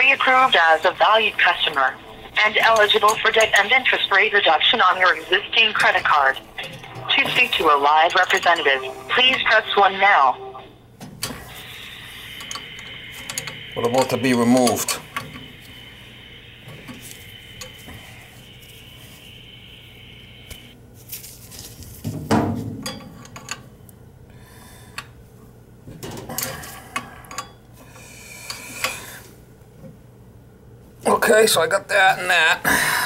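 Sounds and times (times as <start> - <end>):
steady high-pitched tone: 0.0 - 20.8
metal tools clinking and knocking: 22.8 - 23.6, 26.4 - 27.6.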